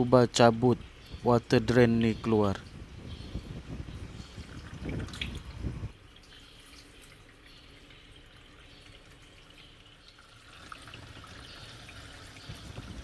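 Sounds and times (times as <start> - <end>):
water trickling and dripping: 3.7 - 13.0.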